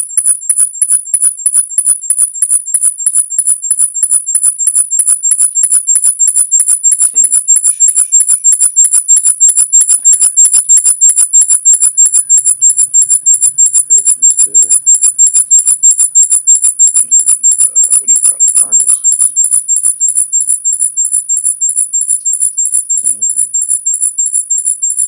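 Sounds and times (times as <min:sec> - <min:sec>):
high-pitched electronic pulsing: 0:00.0 - 0:25.0
steady high whines: 0:07.2 - 0:24.8.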